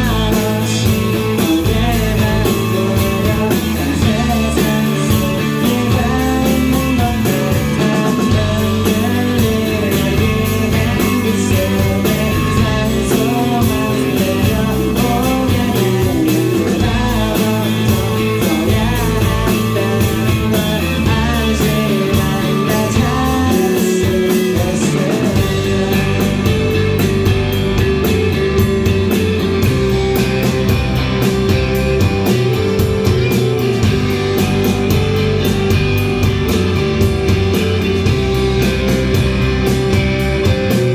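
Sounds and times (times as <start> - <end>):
rock band playing live: 0.0 - 40.9.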